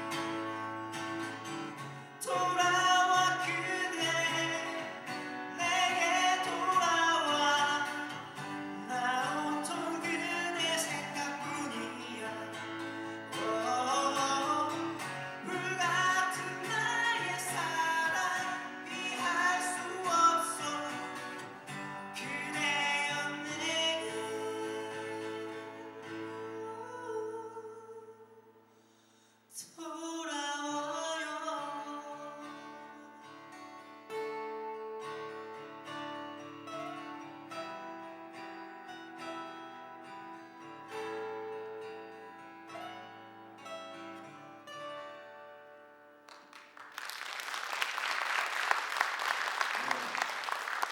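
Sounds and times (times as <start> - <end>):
people singing: 13.3 - 27.9.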